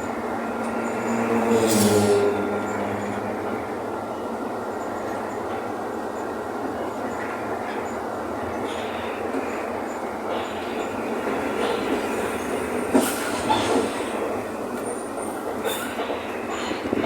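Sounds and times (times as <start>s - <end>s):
bus engine and road rumble: 0.0s - 4.7s.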